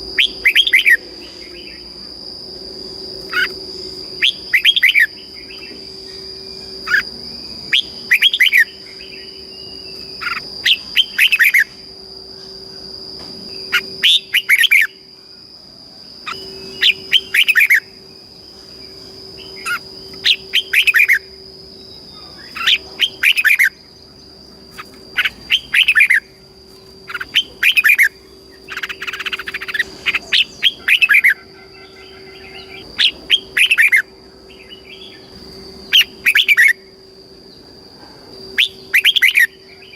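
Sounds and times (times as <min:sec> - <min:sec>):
steady high-pitched tone: 0:00.0 - 0:39.9
bulbul singing warbled phrases: 0:06.6 - 0:11.7, 0:16.3 - 0:17.9, 0:19.4 - 0:26.3.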